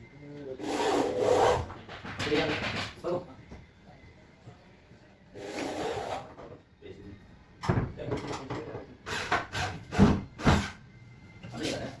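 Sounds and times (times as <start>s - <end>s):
wooden furniture parts knocking: 1.8s - 3.2s, 7.6s - 8.7s.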